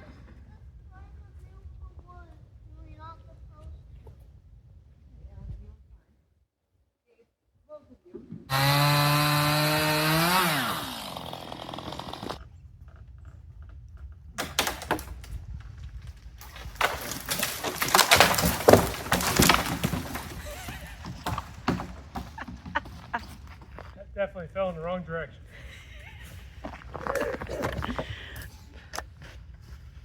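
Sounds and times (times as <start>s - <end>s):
chainsaw engine running: 8.5s - 12.4s
tree cracking and crashing down: 8.5s - 12.4s, 14.4s - 23.6s, 26.6s - 28.5s
wood snapping and breaking: 8.5s - 12.4s, 14.4s - 23.5s, 26.7s - 28.5s.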